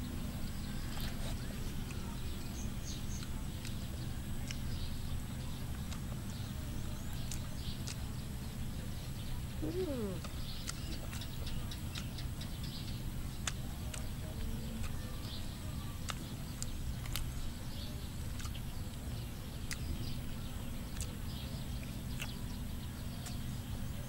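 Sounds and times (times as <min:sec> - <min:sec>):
low background noise: 0:00.0 - 0:24.0
person chewing and smacking: 0:00.4 - 0:04.7, 0:05.7 - 0:08.2, 0:09.6 - 0:12.6, 0:13.2 - 0:15.4, 0:16.0 - 0:17.4, 0:18.2 - 0:19.0, 0:19.6 - 0:22.5
sharp mouth clicks: 0:09.6 - 0:12.2, 0:18.4 - 0:18.6, 0:21.8 - 0:22.4.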